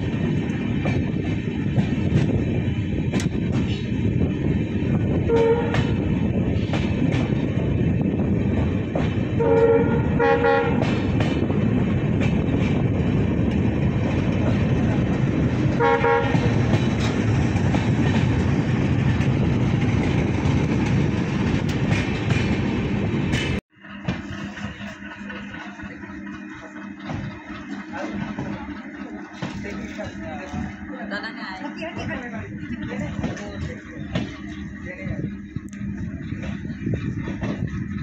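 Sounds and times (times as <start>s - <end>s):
train rumble and rail clatter: 0.0s - 38.0s
train horn blasts: 5.2s - 6.2s, 9.3s - 11.0s, 15.7s - 16.8s.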